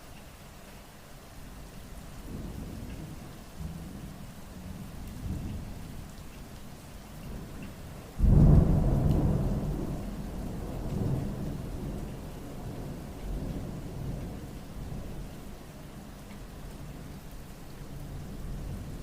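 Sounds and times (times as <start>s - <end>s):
steady rain: 0.0s - 19.0s
thunder clap and rumble: 7.2s - 15.1s.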